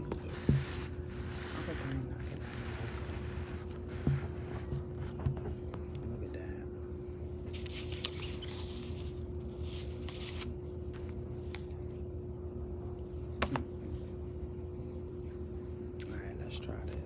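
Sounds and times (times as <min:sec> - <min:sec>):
food containers rustling: 0:07.5 - 0:11.1.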